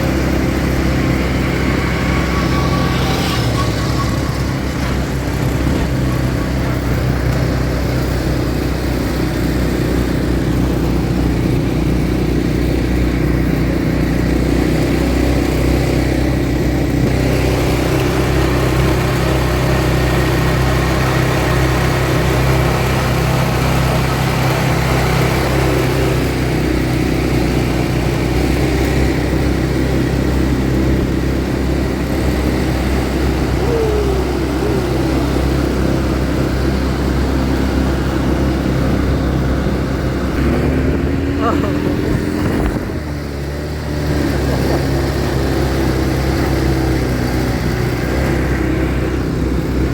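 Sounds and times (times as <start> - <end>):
atv engine running: 0.0 - 49.9
short falling whine: 0.7 - 7.3, 32.5 - 37.1.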